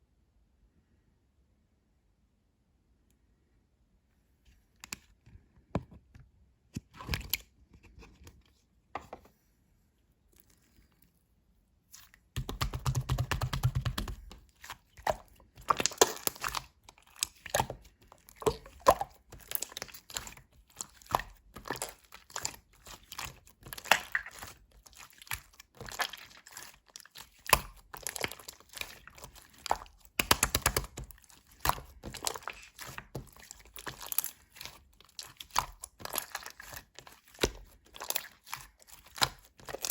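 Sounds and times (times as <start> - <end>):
slime crackling and squelching: 11.8 - 39.9.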